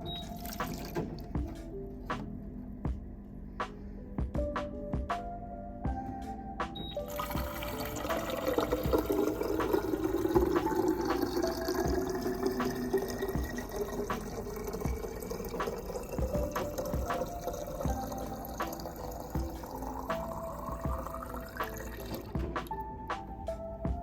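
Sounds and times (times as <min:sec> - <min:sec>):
background music with steady beat: 0:00.0 - 0:24.0
liquid pouring into container: 0:07.1 - 0:22.3.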